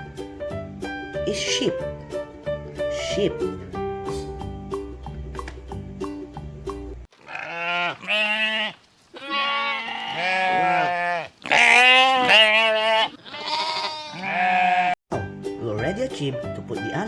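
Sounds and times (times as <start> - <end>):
sheep bleating: 7.2 - 15.0.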